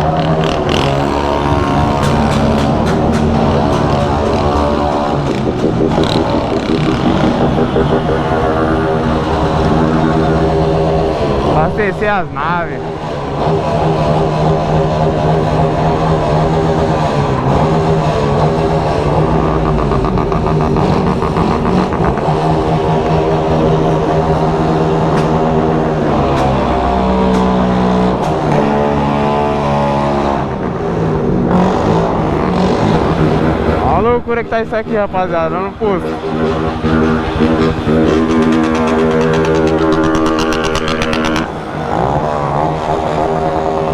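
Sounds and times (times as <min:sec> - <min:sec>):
engine pops: 0:00.0 - 0:09.9
motorcycle engines idling and revving: 0:00.0 - 0:43.9.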